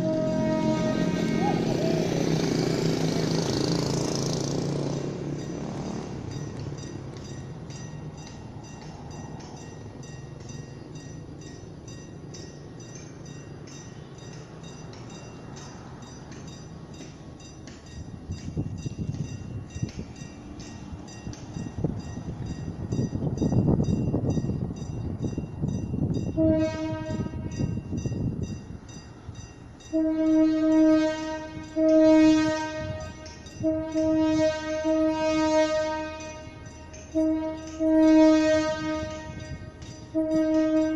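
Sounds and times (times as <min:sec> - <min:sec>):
train horn blasts: 0:00.0 - 0:04.2, 0:26.3 - 0:27.7, 0:29.9 - 0:40.9
diesel train engine hum: 0:00.0 - 0:40.9.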